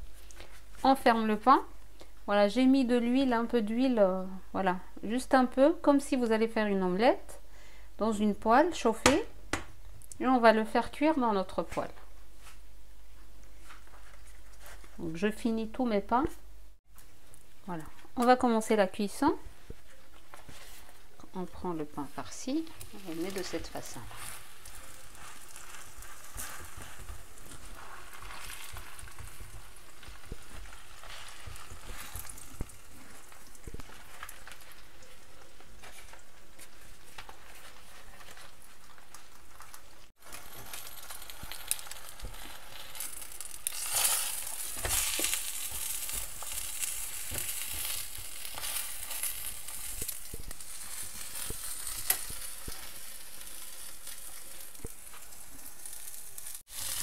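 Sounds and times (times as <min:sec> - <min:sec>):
flatbread sizzling in a frying pan: 0:19.4 - 0:57.0.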